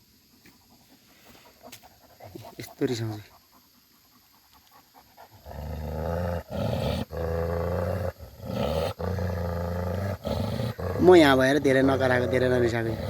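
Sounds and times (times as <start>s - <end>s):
dog growling deeply: 5.2s - 13.0s.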